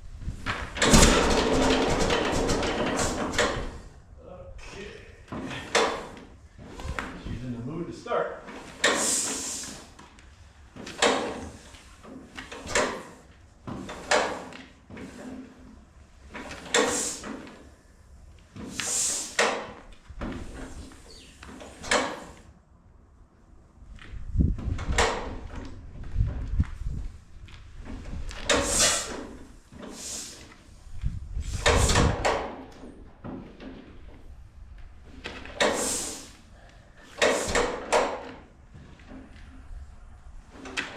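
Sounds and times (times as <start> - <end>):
engine turned over by hand: 0.5 - 3.8
hissing compression puffs: 8.5 - 22.6, 28.1 - 32.8, 35.2 - 38.4.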